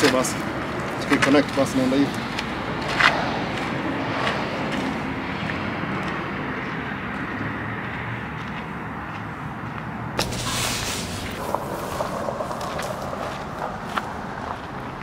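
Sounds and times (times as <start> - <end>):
low outdoor rumble: 10.2 - 15.0.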